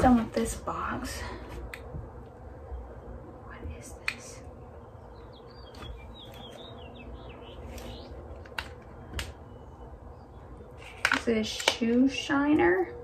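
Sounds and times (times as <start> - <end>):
light sharp clicks: 4.0 - 4.5
small bird chirping: 4.4 - 8.4.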